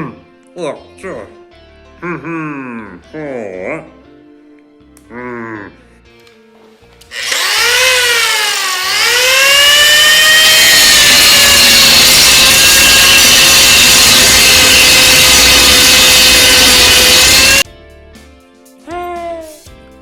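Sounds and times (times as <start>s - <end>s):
power cutting tool whining: 7.1s - 17.6s.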